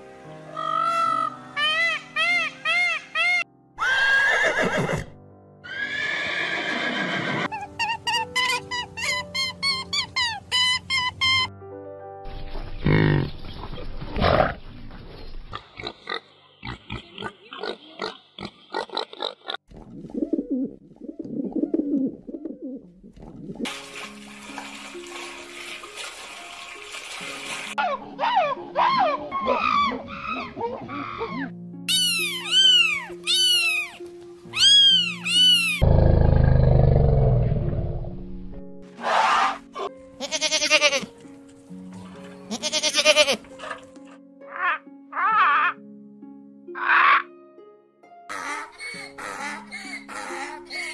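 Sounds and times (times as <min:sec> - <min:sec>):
background music: 0:00.0 - 0:14.6, 0:23.4 - 0:50.9
pigs grunting: 0:12.8 - 0:14.6, 0:15.5 - 0:19.6, 0:35.8 - 0:37.8
pigeons cooing: 0:20.0 - 0:23.6
cat meowing: 0:31.9 - 0:34.0, 0:34.6 - 0:35.8
goat bleating: 0:40.2 - 0:41.1, 0:42.5 - 0:43.4.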